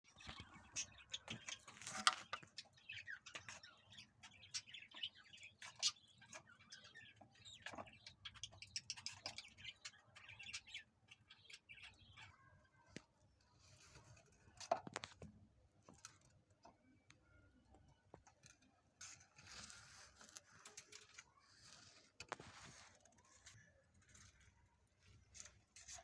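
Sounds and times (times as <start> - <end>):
pet birds chirping: 0.0 - 15.2.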